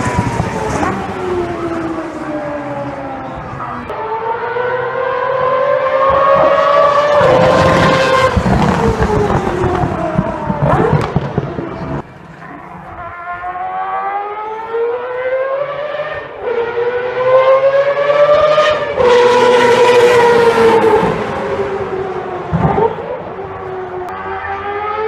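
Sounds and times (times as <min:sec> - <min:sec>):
racing engine screaming at high revs: 0:04.0 - 0:11.3.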